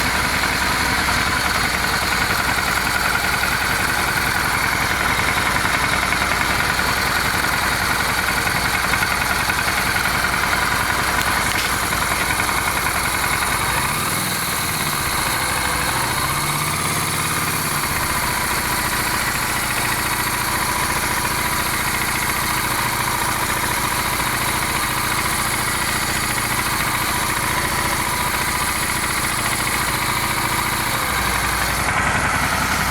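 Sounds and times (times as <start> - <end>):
engine knock: 0.0 - 32.9
motorcycle engine idling: 0.0 - 32.9.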